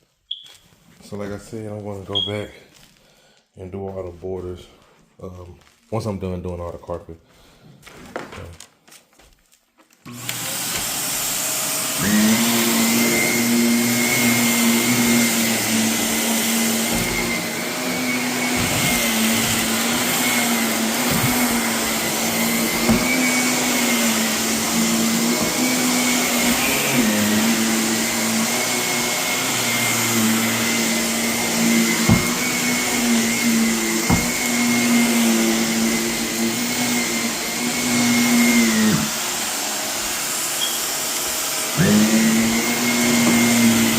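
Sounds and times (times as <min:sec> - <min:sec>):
vacuum cleaner running: 0:10.1 - 0:43.9.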